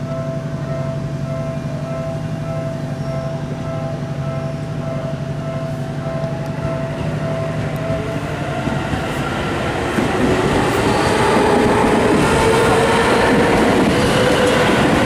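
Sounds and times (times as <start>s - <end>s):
electric train motor tones: 6.2s - 15.0s.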